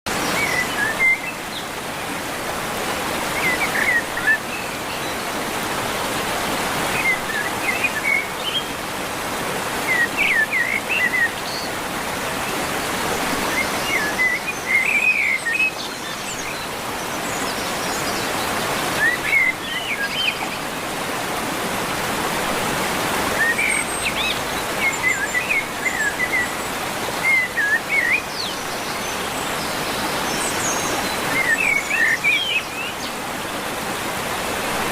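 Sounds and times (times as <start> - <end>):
birds chirping: 23.0 - 34.9.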